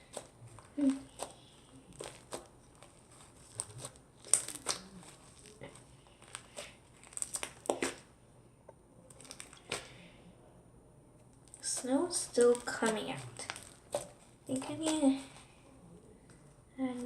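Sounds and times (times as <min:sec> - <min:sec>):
slime crackling and popping: 0:00.0 - 0:08.2, 0:09.0 - 0:10.0, 0:11.2 - 0:15.6.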